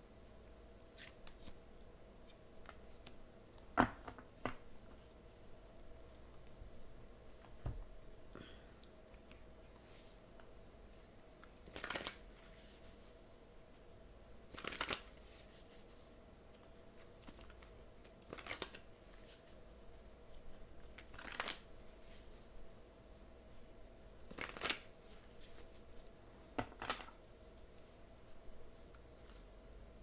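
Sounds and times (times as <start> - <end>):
faint steady hum: 0.0 - 30.0
cards being shuffled: 11.6 - 13.0, 14.5 - 15.8, 16.5 - 19.5, 20.9 - 22.3, 24.3 - 25.8.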